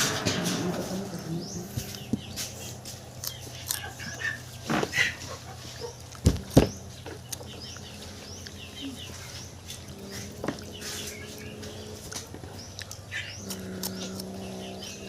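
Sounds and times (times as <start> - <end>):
small birds chirping: 0.1 - 15.0
dull thumps: 6.2 - 6.8.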